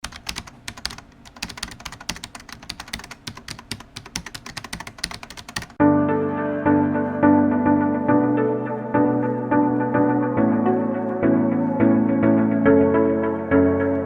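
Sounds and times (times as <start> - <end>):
typing on a keyboard: 0.0 - 5.8
music with sustained chords: 5.8 - 14.0.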